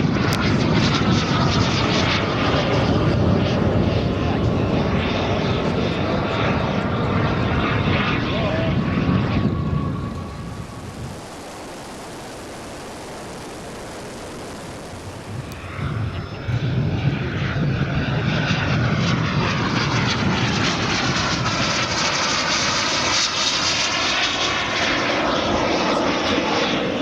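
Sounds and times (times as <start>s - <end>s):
model jet turbines running: 0.0s - 27.0s.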